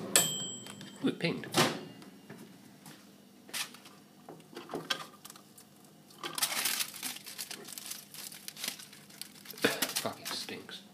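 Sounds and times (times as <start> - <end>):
tinfoil crinkling and rustling: 4.9 - 10.6.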